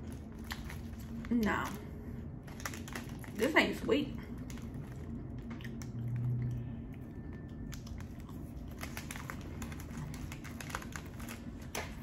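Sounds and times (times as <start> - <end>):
chewing crisp biscuit: 4.2 - 12.0.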